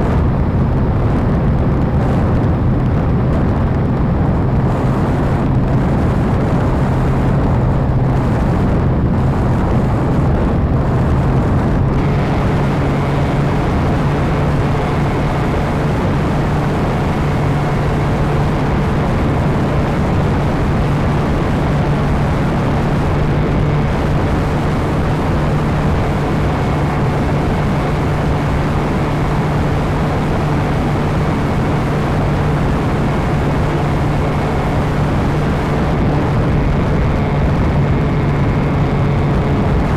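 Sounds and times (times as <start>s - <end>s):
model airplane motor and propeller: 0.0s - 39.9s
wind on microphone: 0.0s - 39.9s
faint high whine: 11.9s - 36.4s.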